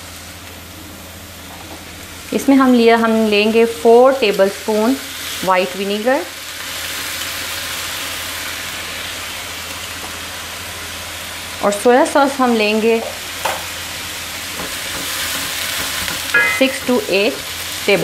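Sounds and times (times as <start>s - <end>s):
vegetables sizzling in a wok: 0.0s - 18.0s
person speaking: 16.4s - 17.2s.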